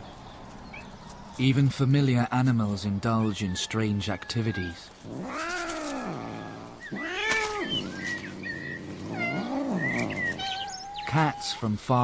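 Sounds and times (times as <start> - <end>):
cat meowing: 4.2 - 7.8, 9.1 - 11.2
cat chirping: 5.2 - 11.2.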